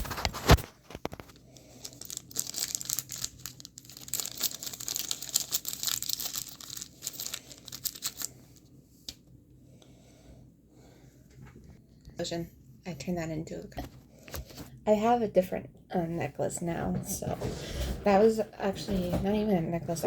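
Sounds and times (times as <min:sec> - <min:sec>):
packaging crinkling: 0:00.0 - 0:08.3.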